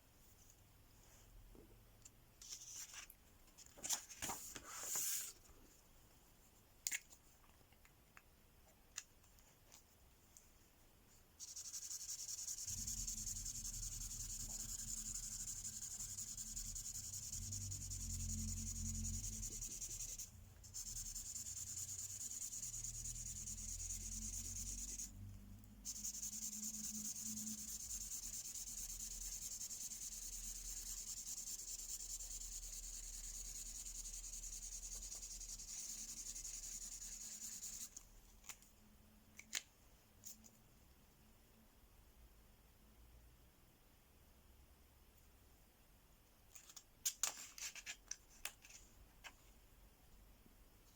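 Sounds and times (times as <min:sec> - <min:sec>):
marker scratching on paper: 0:11.4 - 0:25.2, 0:25.8 - 0:38.0.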